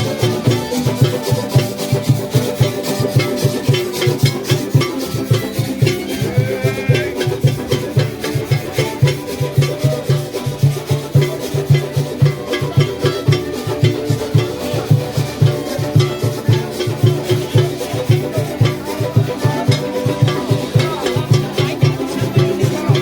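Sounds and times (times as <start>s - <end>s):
rhythmic percussion: 0.0s - 23.0s
string band playing: 0.0s - 23.0s
strummed strings: 0.0s - 23.0s
bass line: 4.3s - 8.0s.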